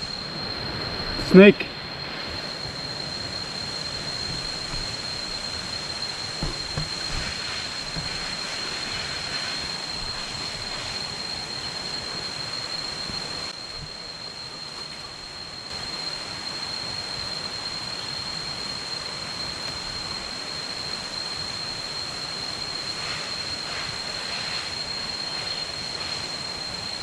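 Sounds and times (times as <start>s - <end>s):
soft knocks: 4.2s - 5.6s, 6.4s - 8.4s.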